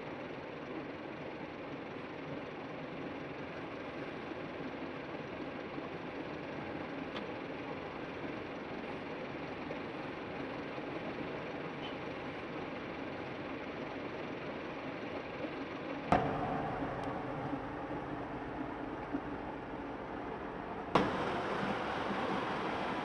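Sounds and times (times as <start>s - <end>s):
truck engine running: 16.1s - 23.0s.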